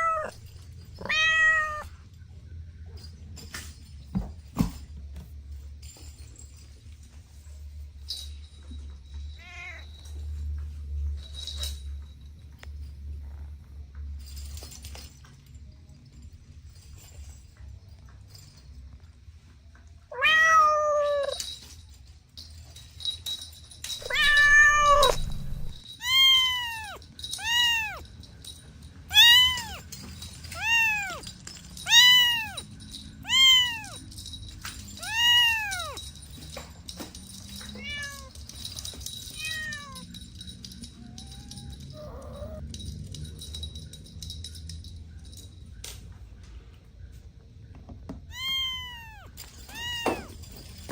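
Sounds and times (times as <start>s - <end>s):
kitten meowing: 0.0s - 0.4s, 1.0s - 1.9s, 20.1s - 21.4s, 24.0s - 28.0s, 29.1s - 29.8s, 30.6s - 31.2s, 31.8s - 32.6s, 33.2s - 34.0s, 35.0s - 36.0s, 41.0s - 42.6s, 48.3s - 50.3s.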